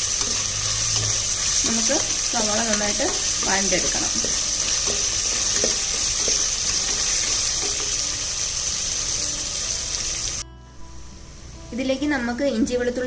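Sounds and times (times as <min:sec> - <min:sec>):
onions sizzling in oil: 0:00.0 - 0:10.4.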